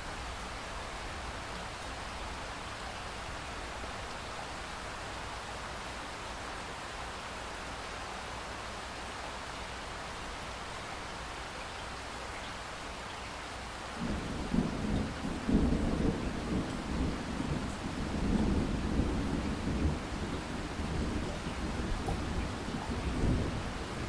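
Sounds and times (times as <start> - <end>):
falling rain: 0.0 - 24.0
rolling thunder rumble: 14.0 - 24.0.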